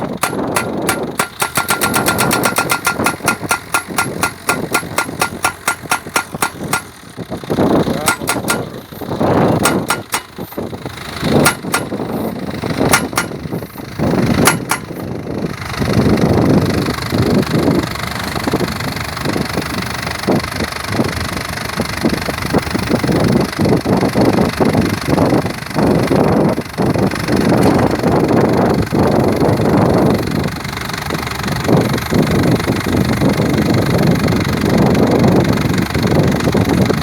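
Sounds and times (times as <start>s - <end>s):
pile driver metallic blows: 0.0s - 15.2s
machine engine running: 0.0s - 20.4s.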